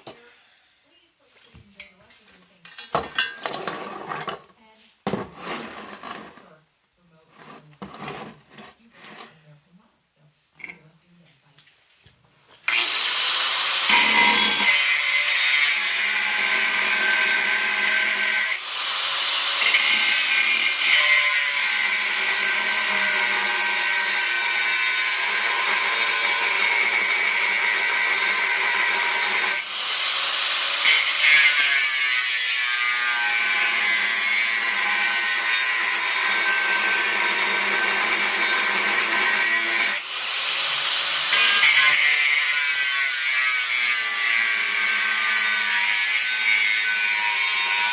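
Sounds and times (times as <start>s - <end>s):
power tool working steel: 12.6s - 47.9s.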